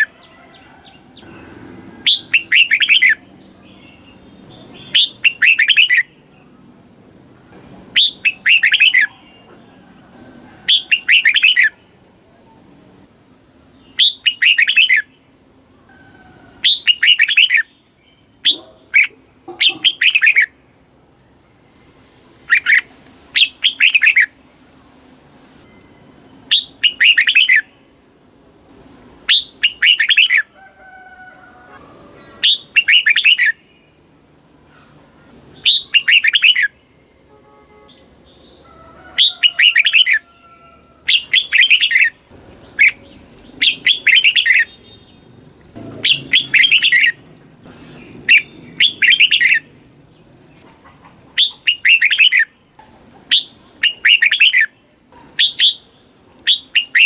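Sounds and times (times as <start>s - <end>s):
bird singing whistled phrases: 2.1s - 3.2s, 4.8s - 6.1s, 8.0s - 9.3s, 10.7s - 11.7s, 14.0s - 15.1s, 16.6s - 17.7s, 26.5s - 27.7s, 29.3s - 30.5s, 32.4s - 33.6s, 35.6s - 36.7s, 41.1s - 42.2s, 43.6s - 44.8s, 46.0s - 47.2s, 48.2s - 49.7s, 51.4s - 52.5s, 53.3s - 54.7s, 55.4s - 55.9s, 56.5s - 57.0s.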